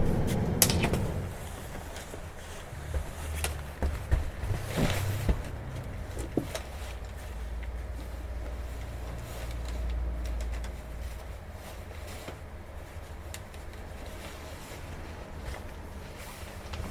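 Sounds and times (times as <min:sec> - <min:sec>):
sharp knocks and rattles: 0:00.0 - 0:07.7
bus engine drone: 0:00.0 - 0:16.9.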